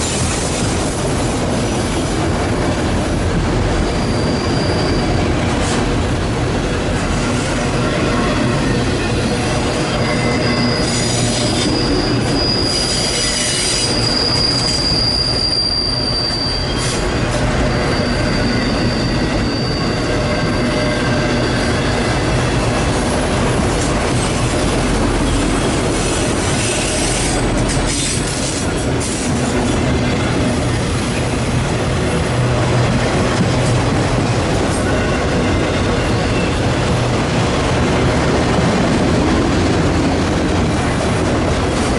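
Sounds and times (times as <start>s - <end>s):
train cars rolling on rails: 0.0s - 41.9s
steel wheels squealing: 3.7s - 5.8s, 7.0s - 31.4s, 34.7s - 36.9s.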